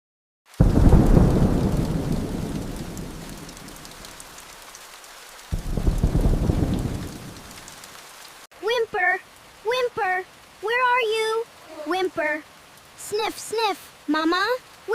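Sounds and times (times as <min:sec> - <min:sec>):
steady rain: 0:00.5 - 0:14.9
thunder rolling: 0:00.6 - 0:04.4, 0:05.5 - 0:07.8.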